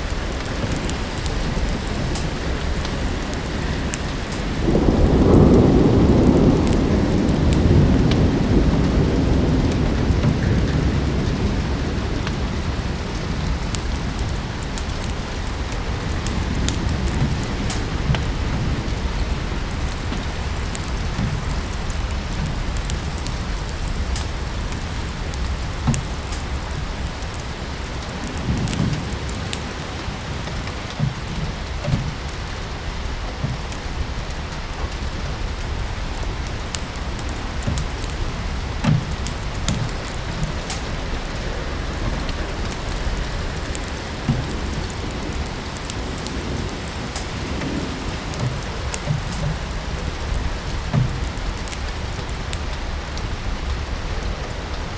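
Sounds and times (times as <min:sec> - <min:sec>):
rain falling: 0:00.0 - 0:54.9
thunder rumble: 0:00.0 - 0:54.9
wood fire crackling: 0:00.0 - 0:54.9.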